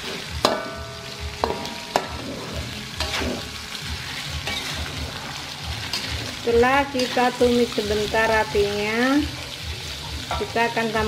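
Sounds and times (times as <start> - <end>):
meat sizzling in a wok: 0.0 - 11.0
metal spatula knocking on wok: 0.4 - 2.2.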